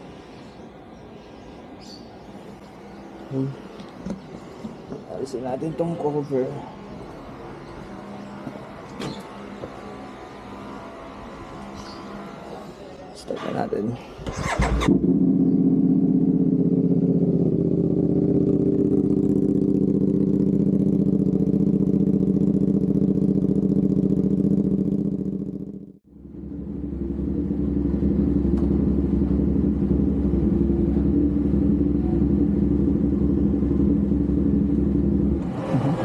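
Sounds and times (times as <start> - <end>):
engine starter cranking: 14.2 - 14.9
motorcycle engine idling: 14.4 - 35.5.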